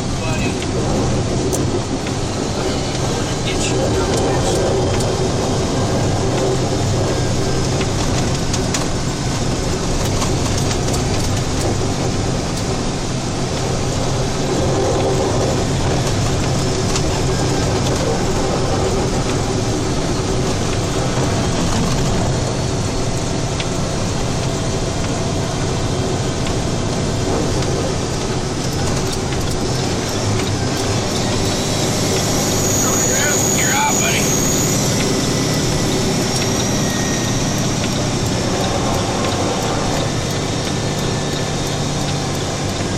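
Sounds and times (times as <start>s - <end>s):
road noise rushing: 0.0s - 42.9s
truck engine hum: 0.0s - 42.9s.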